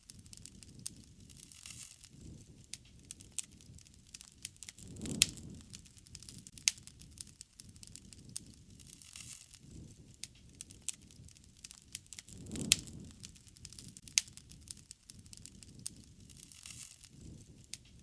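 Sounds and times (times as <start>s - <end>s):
campfire wood crackling: 0.0s - 18.0s
rush of flame: 0.1s - 18.0s.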